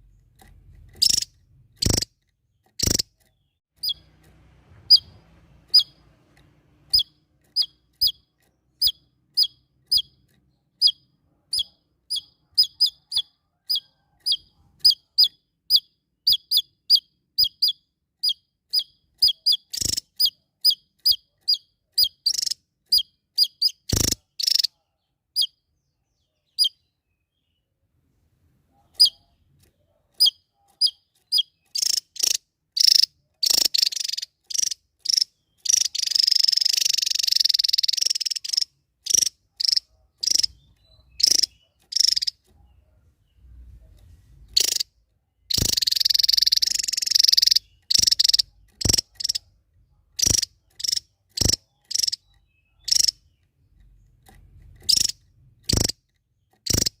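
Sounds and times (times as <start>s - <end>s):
songbird chirping: 0.0s - 57.0s
rapid buzzing bird trills: 0.4s - 4.1s, 6.9s - 10.2s, 10.8s - 24.7s, 30.2s - 42.4s, 44.5s - 44.9s, 45.5s - 49.4s, 50.2s - 53.2s, 54.8s - 57.0s.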